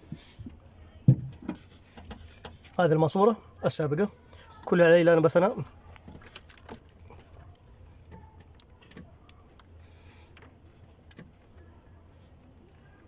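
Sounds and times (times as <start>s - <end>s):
hands handling hose fittings: 4.3s - 13.0s.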